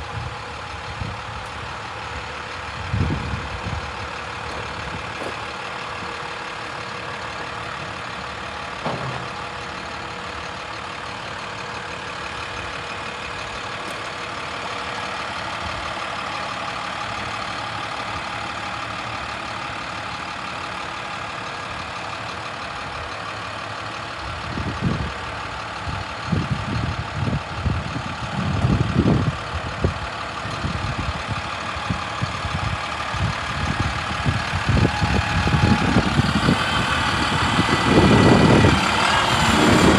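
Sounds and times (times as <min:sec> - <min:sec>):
diesel truck engine running: 0:00.0 - 0:39.9
low rumbling and thumping: 0:02.6 - 0:06.2, 0:28.3 - 0:39.9.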